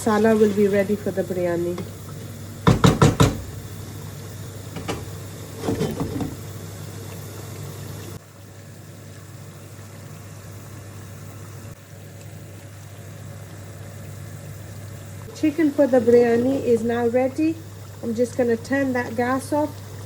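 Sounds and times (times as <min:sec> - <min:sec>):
pans clattering: 0:04.8 - 0:06.4.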